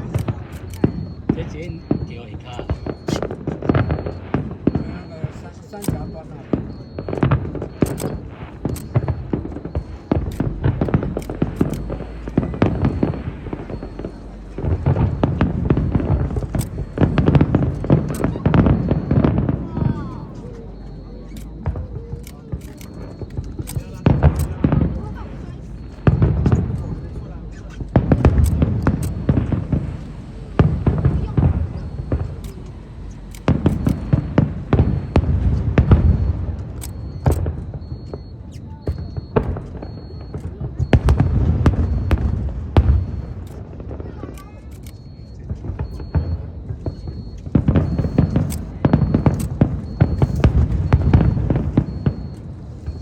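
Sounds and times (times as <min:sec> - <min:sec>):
low rumble: 0:00.0 - 0:38.3
fireworks bursting with sharp bangs: 0:00.0 - 0:53.0.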